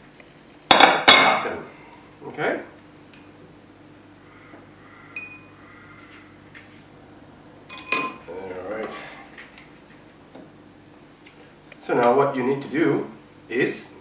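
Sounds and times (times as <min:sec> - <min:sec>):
dishes clinking: 0:05.2 - 0:05.5, 0:07.7 - 0:08.3.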